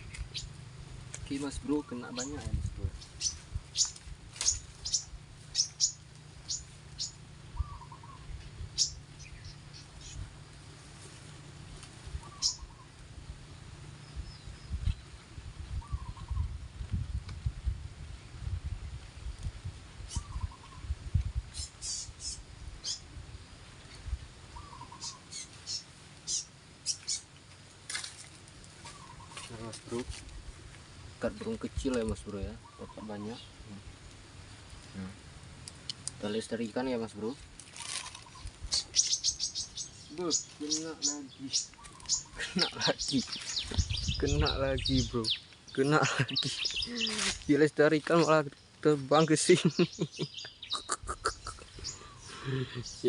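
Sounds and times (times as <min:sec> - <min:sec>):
songbirds chirping: 0:00.0 - 0:17.0, 0:17.9 - 0:53.0
faint bird warbling: 0:03.2 - 0:10.2, 0:12.1 - 0:13.0, 0:15.7 - 0:16.6, 0:20.0 - 0:20.9, 0:21.5 - 0:23.1, 0:24.5 - 0:27.3, 0:28.8 - 0:30.0, 0:32.5 - 0:33.5, 0:37.8 - 0:45.4, 0:46.6 - 0:47.5, 0:50.5 - 0:53.0.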